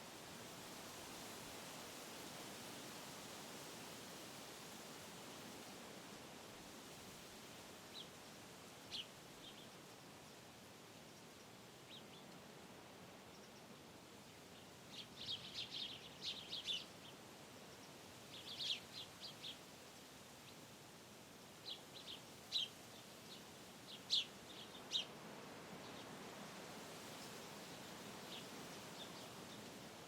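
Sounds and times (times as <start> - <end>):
wind through trees: 0.0 - 30.0.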